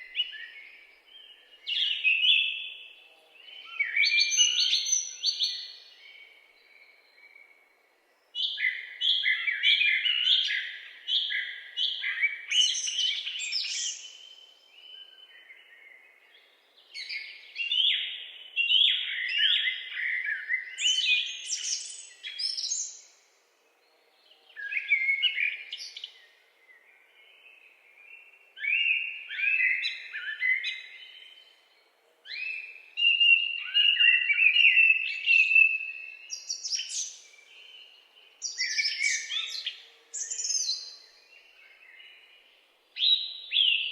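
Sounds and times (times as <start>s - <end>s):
songbirds chirping and warbling: 0.0s - 43.9s.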